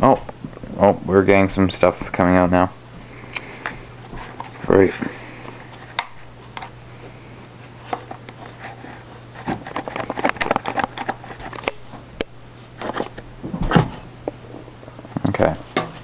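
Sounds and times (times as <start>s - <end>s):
low steady hum: 0.0s - 16.0s
clicks and scratching: 7.9s - 11.8s.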